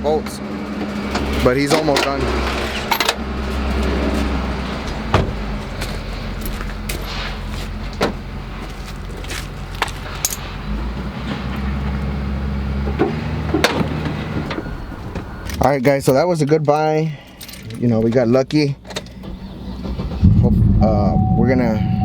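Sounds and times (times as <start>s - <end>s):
vehicle engine idling: 0.0s - 16.1s.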